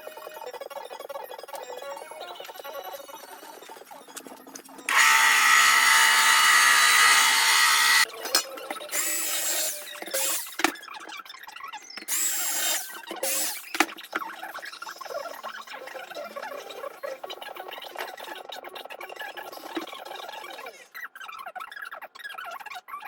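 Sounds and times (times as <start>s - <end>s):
power saw cutting foam: 4.9s - 8.1s, 8.9s - 10.7s, 12.1s - 13.9s.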